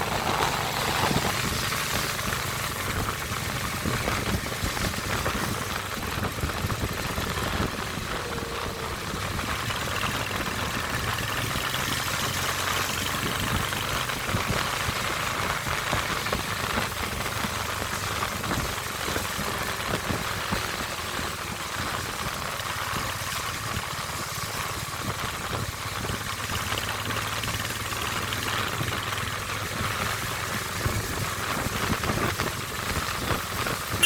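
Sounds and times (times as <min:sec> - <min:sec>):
constant noisy hiss: 0:00.0 - 0:34.0
motorcycle engine running: 0:00.0 - 0:34.0.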